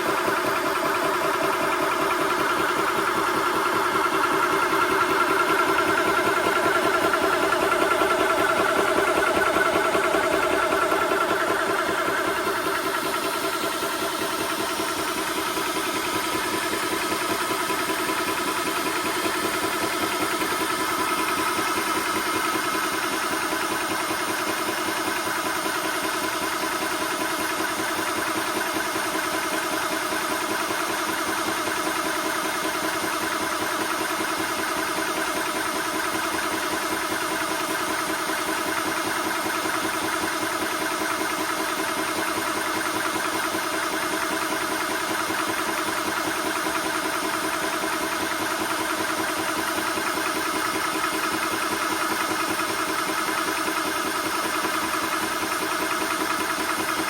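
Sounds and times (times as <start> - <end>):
air compressor running: 0.0 - 57.0.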